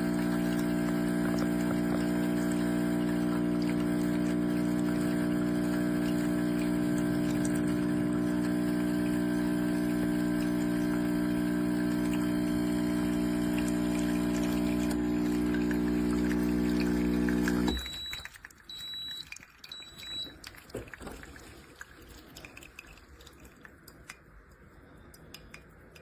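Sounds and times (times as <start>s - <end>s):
espresso machine pump humming: 0.0s - 18.1s.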